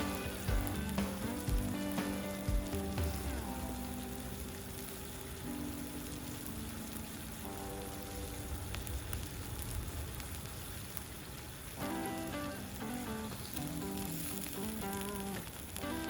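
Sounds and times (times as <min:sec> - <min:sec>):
background music: 0:00.0 - 0:08.5, 0:11.8 - 0:16.0
food sizzling on a hot plate: 0:00.0 - 0:16.0.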